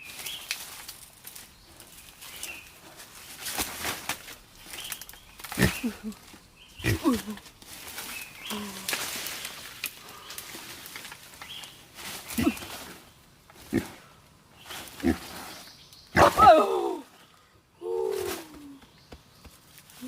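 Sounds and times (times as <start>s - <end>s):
boar grunting: 5.5s - 7.4s, 12.3s - 13.0s, 13.6s - 14.1s, 14.9s - 15.5s, 16.1s - 17.0s
boar squealing: 16.2s - 17.0s.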